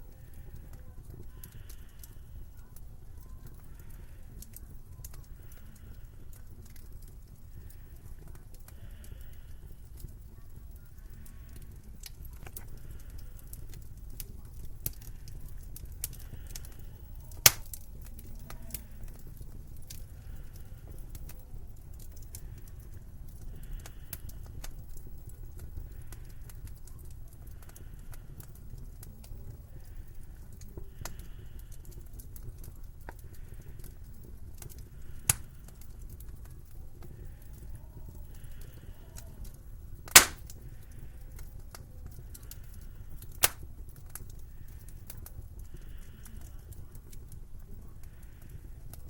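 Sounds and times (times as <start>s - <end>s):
wood fire crackling: 0.0s - 49.0s
sharp loud pops: 17.5s - 17.7s, 40.1s - 40.4s.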